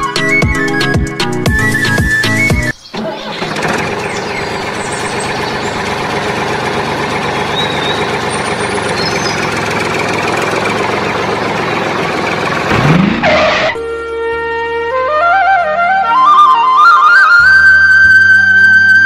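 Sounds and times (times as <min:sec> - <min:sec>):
flute music: 0:00.0 - 0:05.9, 0:13.7 - 0:19.0
tractor engine running: 0:00.0 - 0:13.8.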